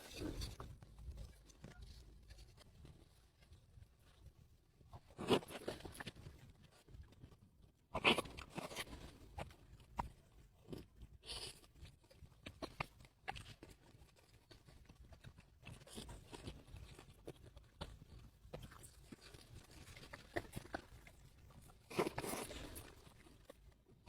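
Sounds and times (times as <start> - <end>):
crackling chewing: 0.0 - 24.0
crunching bite: 10.6 - 23.6.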